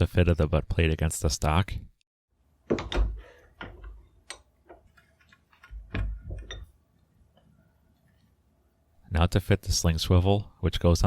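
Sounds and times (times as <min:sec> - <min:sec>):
tools knocking on a bench: 0:02.7 - 0:04.0.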